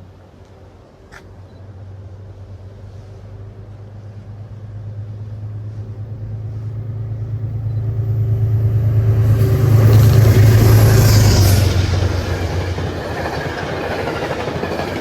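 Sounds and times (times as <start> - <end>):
train rumbling: 0.0 - 15.0
hiss of wheels and rushing air: 5.2 - 15.0.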